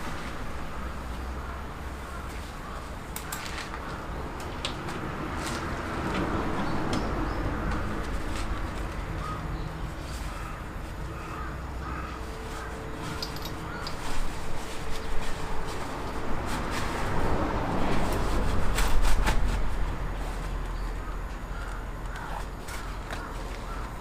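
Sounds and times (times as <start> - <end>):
crows cawing: 1.3 - 4.2, 9.0 - 14.1, 20.8 - 24.0.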